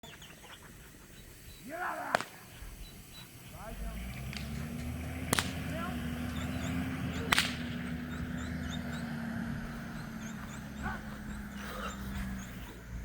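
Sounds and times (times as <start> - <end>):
faint high chirps: 0.0 - 13.0
low drone: 0.0 - 13.0
sharp crack: 1.7 - 2.8, 3.5 - 8.3.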